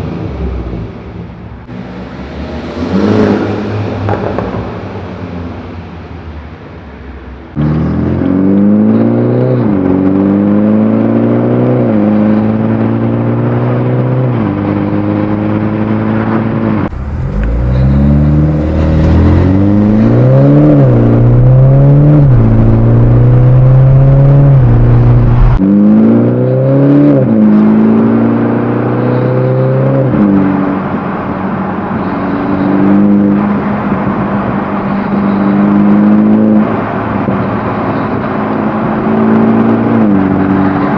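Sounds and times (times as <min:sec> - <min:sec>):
car engine revving: 0:00.0 - 0:06.6, 0:07.5 - 0:40.9.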